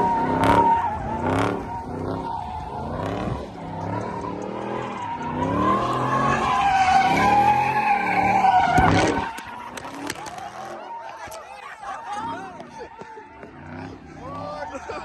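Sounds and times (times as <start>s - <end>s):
car engine revving: 0.0s - 10.8s, 12.1s - 15.0s
tyres squealing: 3.5s - 14.9s.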